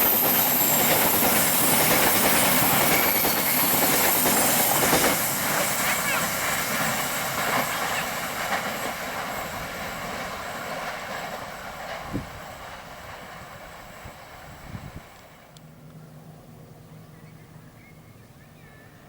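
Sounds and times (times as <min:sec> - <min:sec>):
train wheels on rails: 0:00.0 - 0:16.3.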